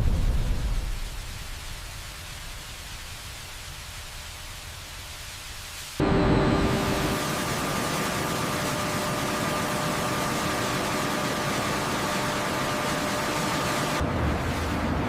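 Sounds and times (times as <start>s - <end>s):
industrial machinery humming: 6.0s - 15.0s.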